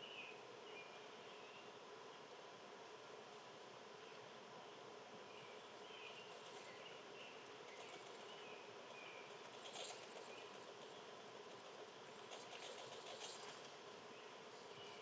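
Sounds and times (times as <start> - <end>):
soft bird chirps: 0.0 - 2.3, 5.2 - 11.2, 12.1 - 15.0
faint outdoor ambience: 0.0 - 15.0.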